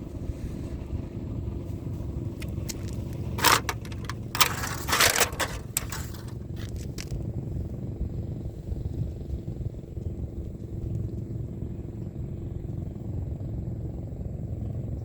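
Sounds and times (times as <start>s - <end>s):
steady low rumble: 0.0s - 15.0s
rustling scraping noise: 2.4s - 7.2s.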